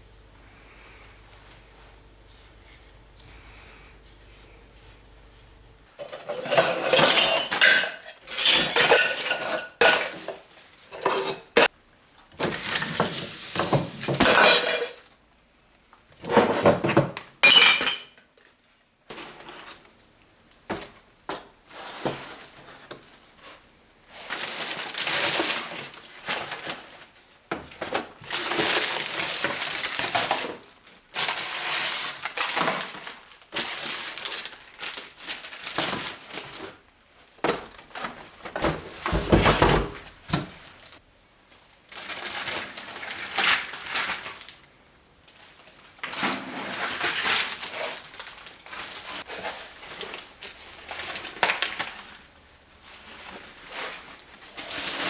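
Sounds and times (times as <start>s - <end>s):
glassware and dishes clinking: 6.0s - 10.2s, 17.4s - 18.1s.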